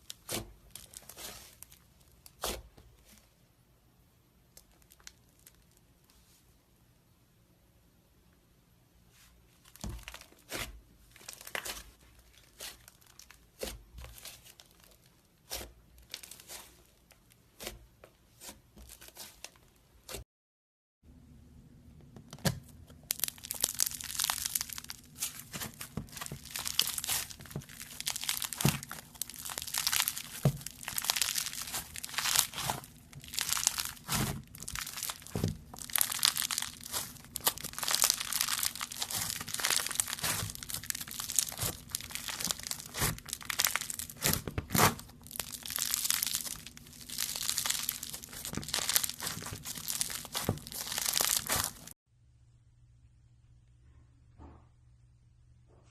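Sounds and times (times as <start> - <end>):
slime crackling and clicking: 23.0 - 51.9.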